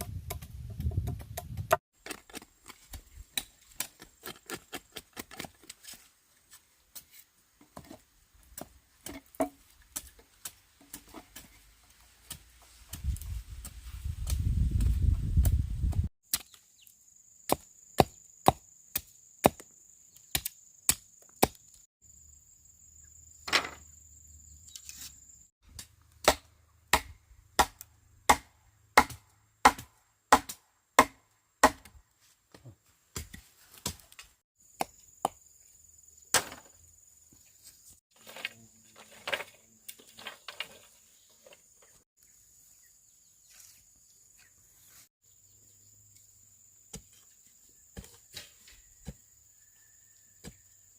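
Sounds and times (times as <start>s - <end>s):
bamboo crackling: 2.0s - 15.6s, 16.2s - 17.0s
blade chopping bamboo: 25.7s - 32.0s.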